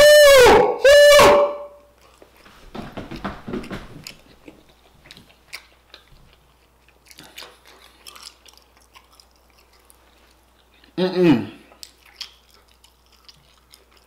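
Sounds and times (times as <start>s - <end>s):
crunchy chewing: 1.8s - 2.4s, 3.6s - 14.0s.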